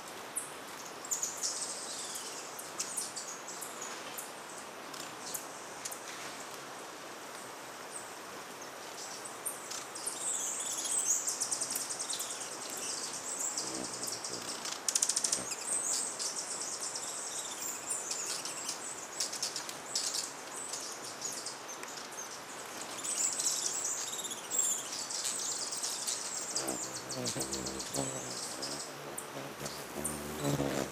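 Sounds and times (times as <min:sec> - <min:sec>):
hummingbirds chittering: 0:13.4 - 0:15.6, 0:25.8 - 0:30.9
hummingbird wings buzzing: 0:13.5 - 0:15.6, 0:26.3 - 0:30.9.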